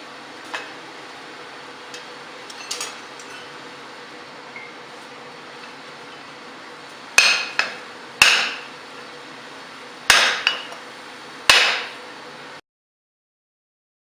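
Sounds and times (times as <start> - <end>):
hammer striking steel on anvil: 7.2 - 8.7, 10.1 - 10.8, 11.5 - 12.0.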